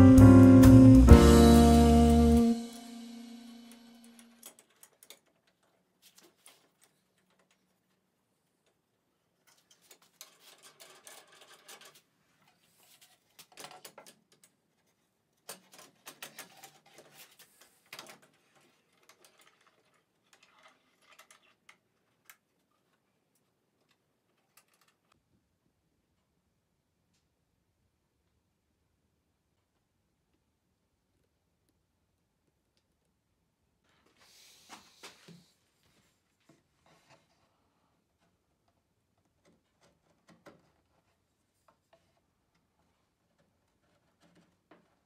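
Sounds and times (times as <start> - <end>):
clicks and knocks of clamps: 13.4 - 14.6, 15.4 - 17.2.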